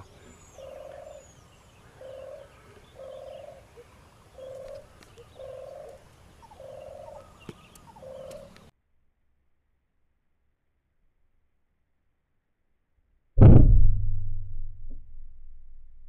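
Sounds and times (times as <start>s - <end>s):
bird calling: 0.0s - 8.7s.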